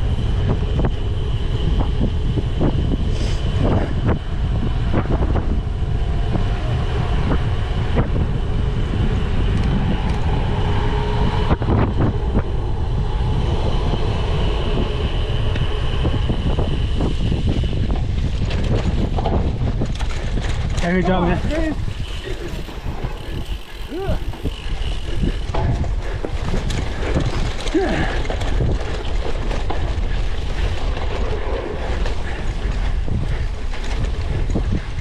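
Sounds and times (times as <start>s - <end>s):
bike rattling over rough ground: 0.0s - 35.0s.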